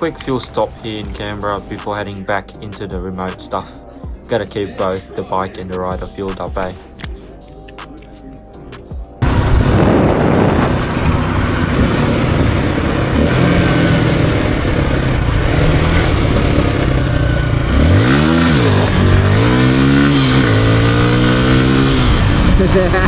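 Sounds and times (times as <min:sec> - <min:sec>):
motorcycle engine accelerating: 0:09.2 - 0:23.0
wind and road noise: 0:09.2 - 0:23.0.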